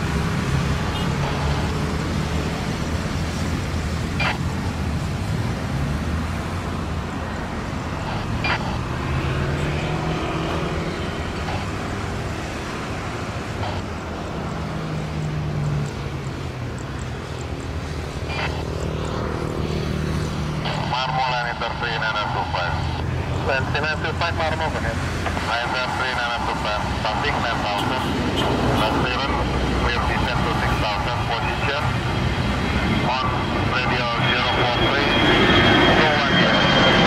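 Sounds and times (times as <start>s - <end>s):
engines rumbling: 0.0s - 37.0s.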